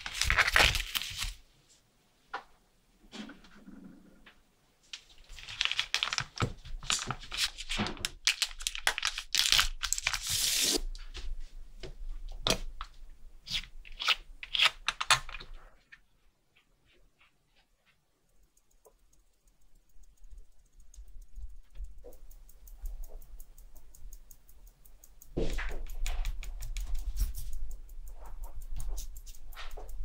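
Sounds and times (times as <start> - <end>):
sharp clicks: 18.3 - 30.0.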